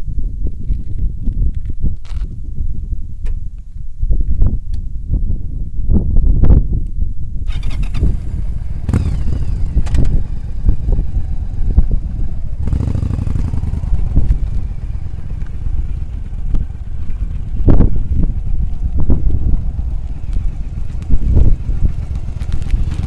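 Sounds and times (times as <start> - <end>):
wind buffeting microphone: 0.0 - 23.0
motorcycle engine running: 7.5 - 23.0.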